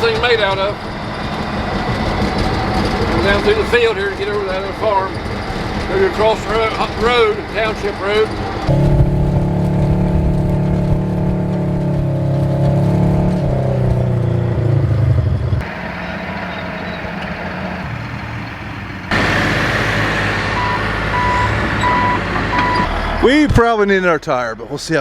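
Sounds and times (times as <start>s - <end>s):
bulldozer diesel engine: 0.0s - 25.0s
backup alarm beeping: 8.7s - 11.9s, 20.5s - 23.4s.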